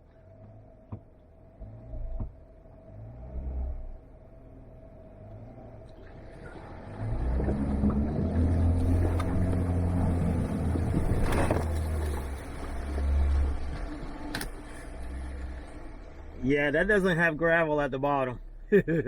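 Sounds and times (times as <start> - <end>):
vehicle engine working hard: 0.4 - 17.8
water splashing and sloshing: 5.7 - 16.4.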